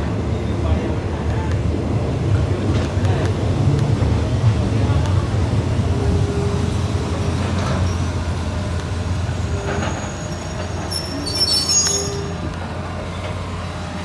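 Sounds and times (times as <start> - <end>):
train wheels rumbling on rail: 0.0 - 14.0
high wheel squeal: 7.6 - 13.4.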